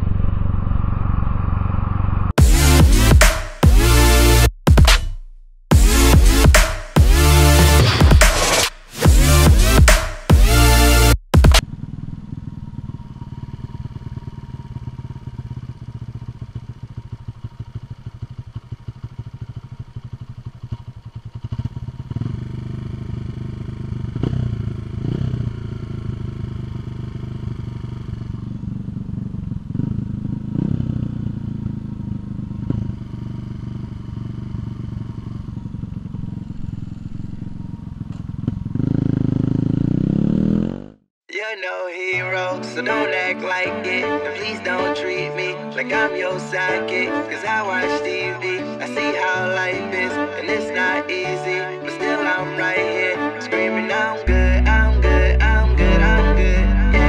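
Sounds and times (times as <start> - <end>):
motorcycle engine idling and revving: 0.0 - 41.1, 52.2 - 57.0.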